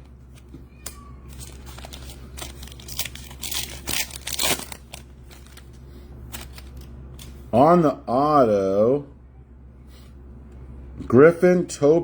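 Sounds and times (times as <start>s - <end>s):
card pack wrappers crinkling: 0.4s - 7.4s.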